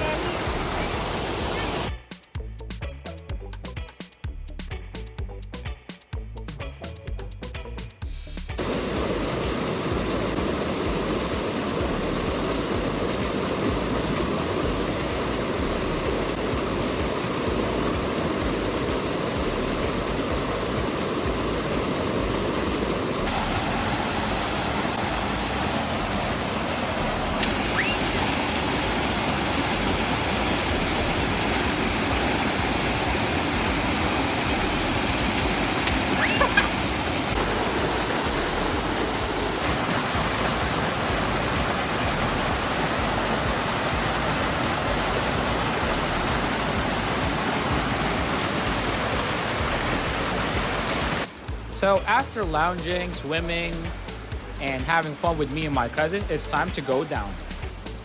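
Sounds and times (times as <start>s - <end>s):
waterfall rushing and splashing: 0.0s - 1.9s, 8.6s - 58.0s
high chirp: 27.4s - 28.4s, 36.1s - 36.8s.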